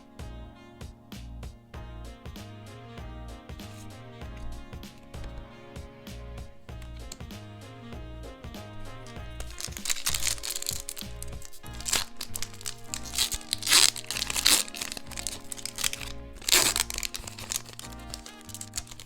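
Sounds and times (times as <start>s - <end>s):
background music: 0.0s - 19.0s
packaging crinkling: 9.0s - 19.0s.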